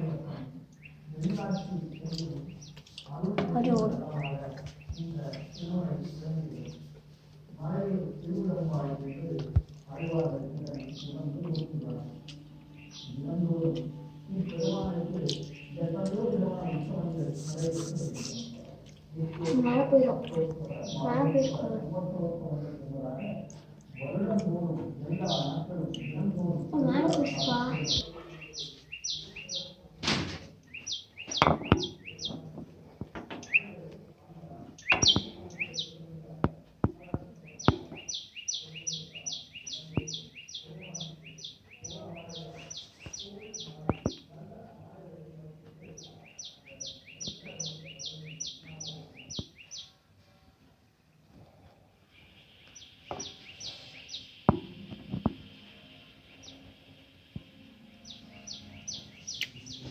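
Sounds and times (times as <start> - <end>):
small bird chirping: 0.7 - 5.9, 8.8 - 21.7, 23.2 - 29.8, 30.7 - 32.4, 34.8 - 36.1, 36.9 - 44.3, 45.8 - 50.0, 52.1 - 55.6, 58.0 - 59.9.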